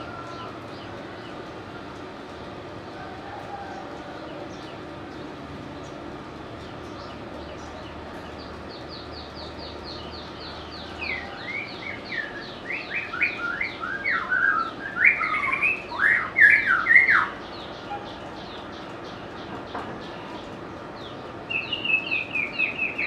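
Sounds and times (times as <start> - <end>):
bird whistled phrases: 11.6 - 17.3.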